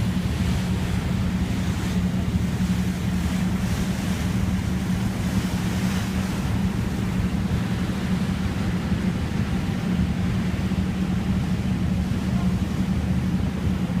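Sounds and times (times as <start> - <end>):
motorboat engine droning: 0.0 - 14.0
wind and water rushing: 0.0 - 14.0.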